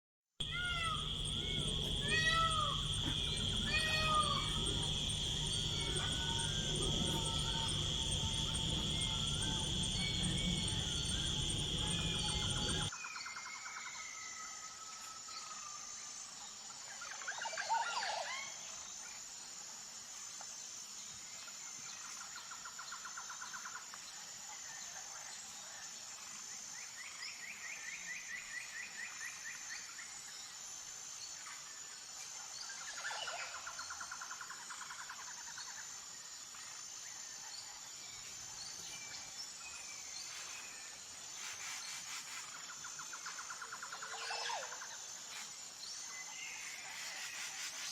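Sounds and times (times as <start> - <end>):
bird trills: 0.4 - 12.9
insects pulsing drone: 0.4 - 47.9.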